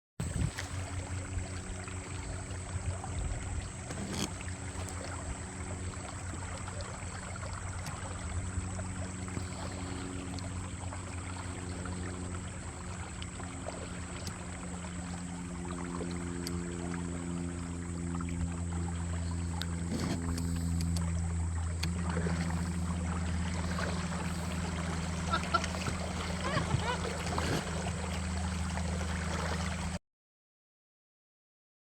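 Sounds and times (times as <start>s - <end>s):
wind noise: 0.2s - 0.7s
low multi-tone hum: 0.2s - 30.0s
water lapping: 0.2s - 30.0s.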